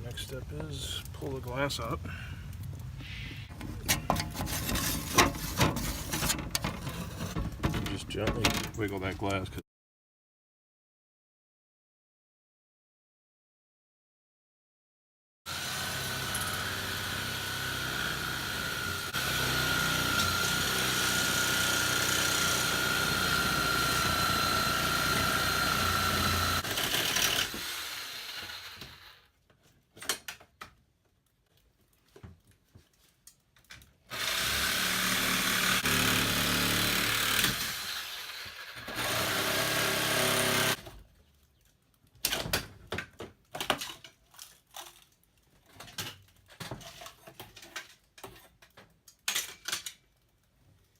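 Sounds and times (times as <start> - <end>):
power tool motor whining: 3.8 - 7.4, 15.5 - 29.1, 34.1 - 40.8.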